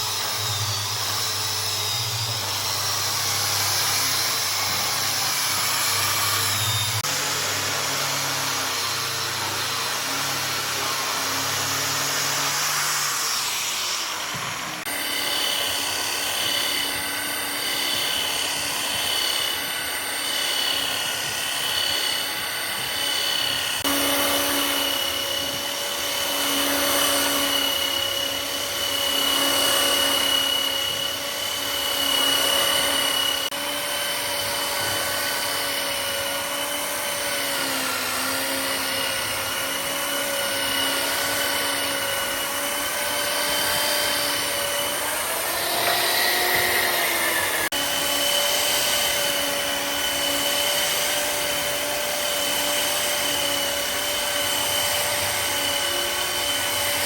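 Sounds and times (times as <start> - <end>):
power tool motor whining: 0.0 - 57.0.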